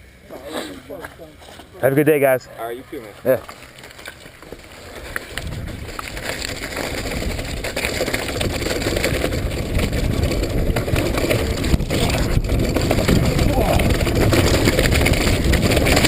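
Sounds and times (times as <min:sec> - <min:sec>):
tyres rolling on wet dirt: 0:00.0 - 0:16.0
bike rattling and clicking: 0:01.0 - 0:16.0
wind rushing over microphone: 0:05.3 - 0:16.0.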